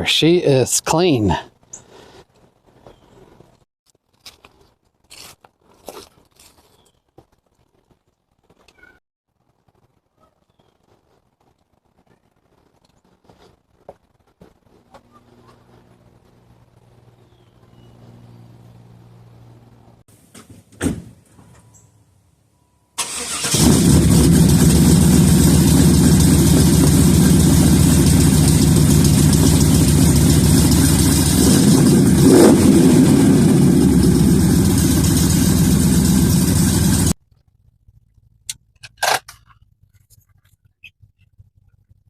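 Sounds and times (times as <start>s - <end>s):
car engine starting and running: 23.0s - 37.2s.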